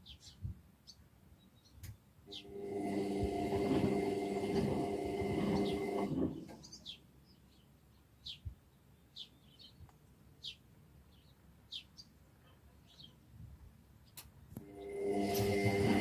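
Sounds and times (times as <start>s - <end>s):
bird chirping: 0.0s - 2.6s, 6.5s - 12.2s
washing machine humming: 2.3s - 6.6s, 14.6s - 16.0s.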